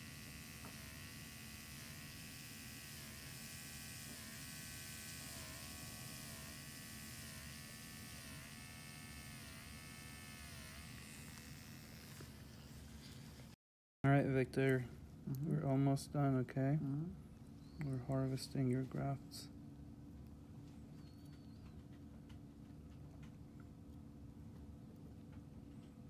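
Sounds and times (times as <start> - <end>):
handpiece whirring: 0.0 - 13.6.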